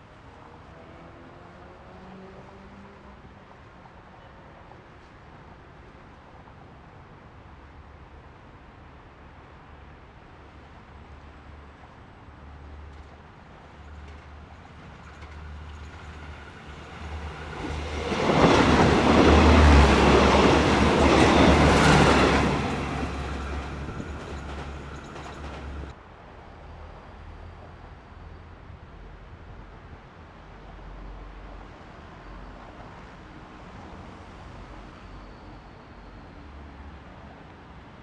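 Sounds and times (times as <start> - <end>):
diesel railcar engines humming: 13.6 - 26.0
train wheels rumbling on rails: 13.9 - 26.0.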